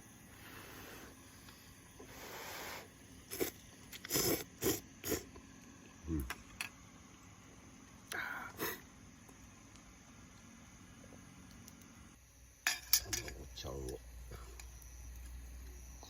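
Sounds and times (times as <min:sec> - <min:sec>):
noodle slurping: 0:03.3 - 0:05.4.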